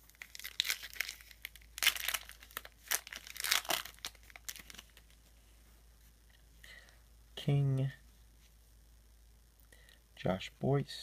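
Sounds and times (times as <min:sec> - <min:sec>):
trading cards rustling: 0:00.1 - 0:05.2.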